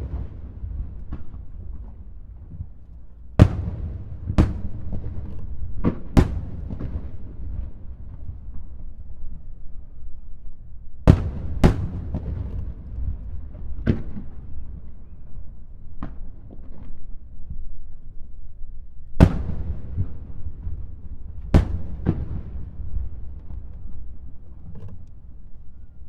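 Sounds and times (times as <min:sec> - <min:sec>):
fireworks bursting with echoes: 0:00.0 - 0:09.0, 0:11.1 - 0:15.4, 0:19.2 - 0:24.5
steady low rumble: 0:00.0 - 0:10.1.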